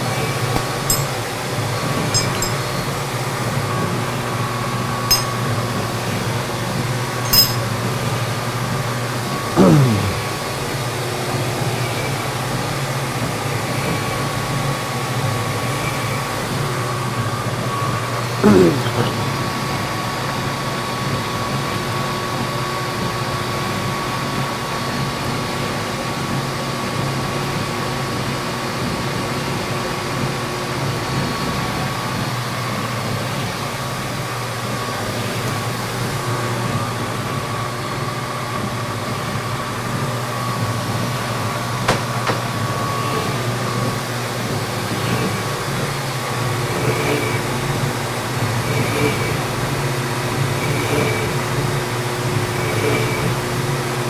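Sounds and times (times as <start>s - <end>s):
metal lathe running: 46.4s - 54.0s.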